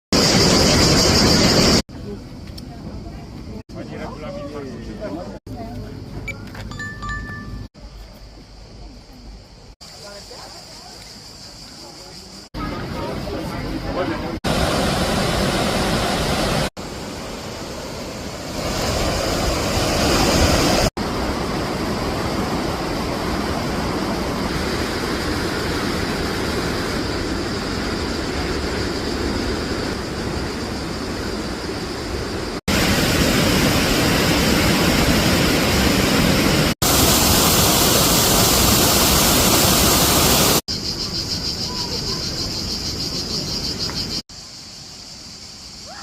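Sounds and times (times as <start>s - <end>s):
waterfall water rushing: 14.5s - 27.3s, 32.7s - 40.6s.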